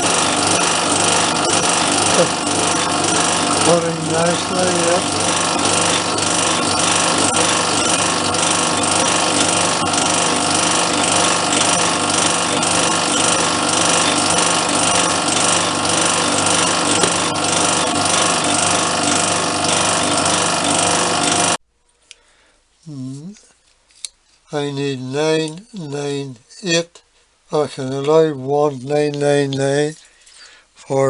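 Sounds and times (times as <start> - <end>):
metal lathe cutting: 0.0 - 21.6.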